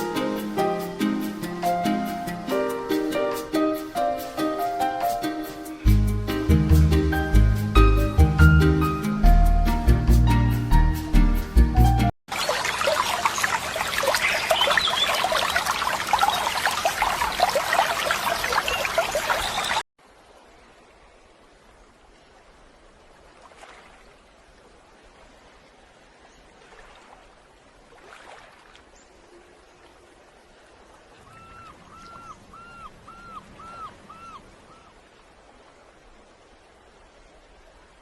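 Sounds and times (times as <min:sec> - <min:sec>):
running water splashing: 0:12.3 - 0:38.0.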